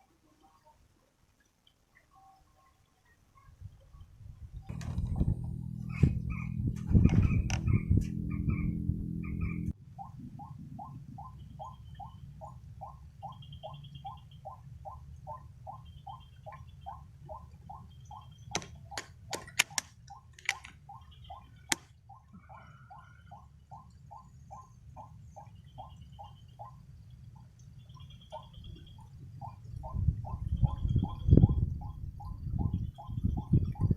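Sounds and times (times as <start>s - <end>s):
low rumble: 4.7s - 12.7s
sharp clicks: 18.5s - 20.8s.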